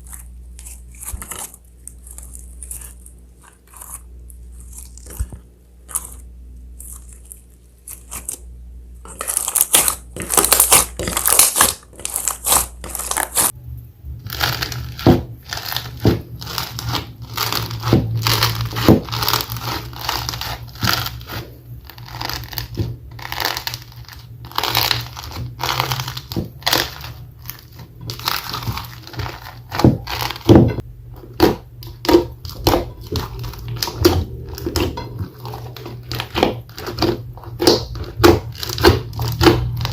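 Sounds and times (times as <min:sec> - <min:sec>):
slime crackling and popping: 0:00.0 - 0:08.4, 0:09.0 - 0:13.6, 0:14.2 - 0:39.9.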